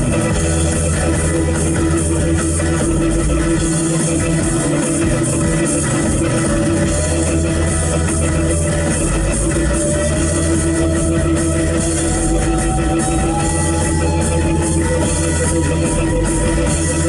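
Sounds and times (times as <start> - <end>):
instrumental rock guitar music: 0.0 - 17.0
sustained note bending upward: 6.8 - 17.0.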